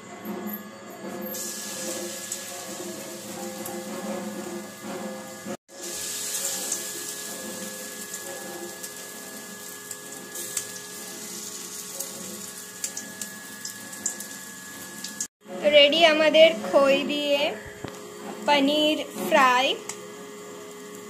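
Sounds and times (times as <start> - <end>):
food sizzling in hot oil: 1.3 - 15.3.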